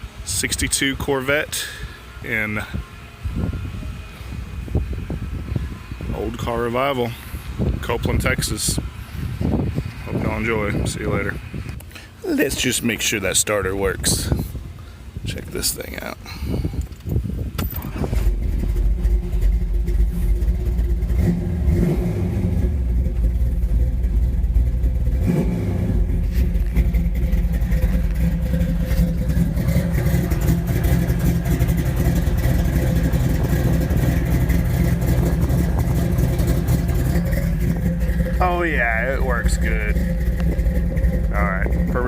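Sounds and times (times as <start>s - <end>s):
car engine running: 17.1s - 42.0s.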